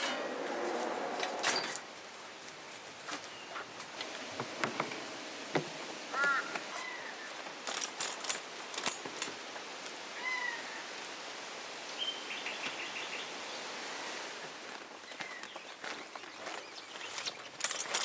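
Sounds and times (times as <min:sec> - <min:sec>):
outdoor hiss: 0:00.0 - 0:18.0
wild birds calling: 0:03.3 - 0:07.6, 0:10.1 - 0:11.0.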